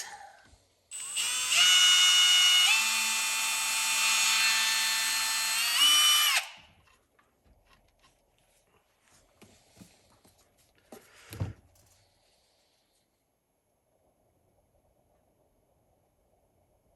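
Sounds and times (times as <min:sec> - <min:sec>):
power drill whining: 0:00.9 - 0:06.8.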